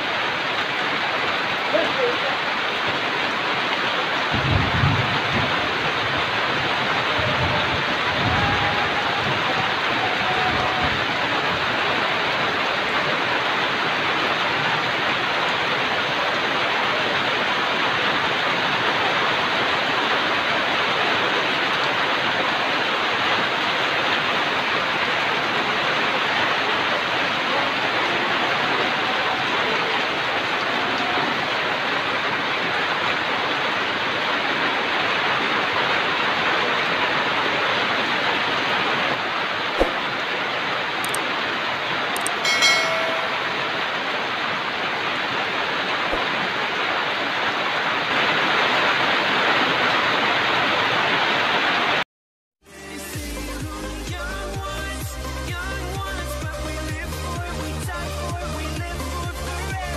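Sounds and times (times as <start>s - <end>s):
steady rain falling: 0.0s - 52.0s, 52.7s - 59.9s
sharp tap: 39.8s - 40.0s.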